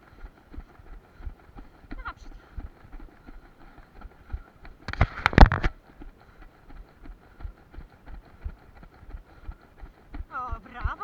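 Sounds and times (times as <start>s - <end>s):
runner's footsteps: 0.0s - 11.0s
knocks and rustling: 4.9s - 5.8s.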